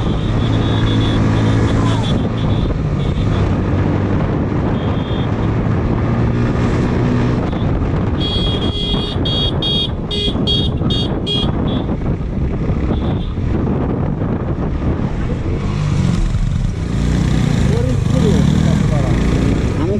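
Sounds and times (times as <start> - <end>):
motorcycle engine and road noise: 0.0 - 19.9
high-pitched horn toots: 7.4 - 11.9.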